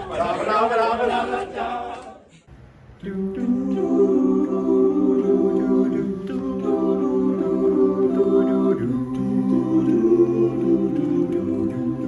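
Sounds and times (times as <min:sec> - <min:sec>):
voices singing: 0:00.0 - 0:02.4, 0:03.0 - 0:12.0
group humming a chord: 0:03.0 - 0:12.0.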